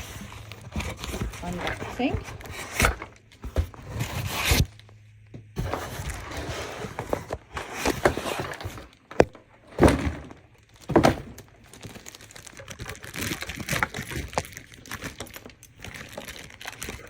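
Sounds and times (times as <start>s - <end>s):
packing rubbing and scraping: 0.0s - 4.6s.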